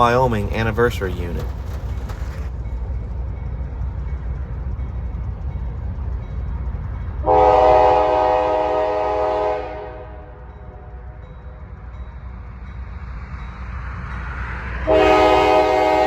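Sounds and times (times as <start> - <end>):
diesel locomotive rumbling: 0.0 - 16.0
locomotive air horn blast: 7.2 - 10.4, 14.9 - 16.0.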